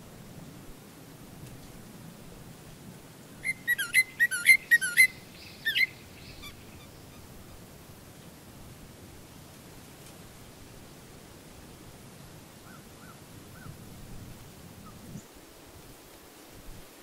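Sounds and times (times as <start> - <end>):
faint steady hiss: 0.0 - 17.0
bird calling with shrill notes: 3.4 - 7.2.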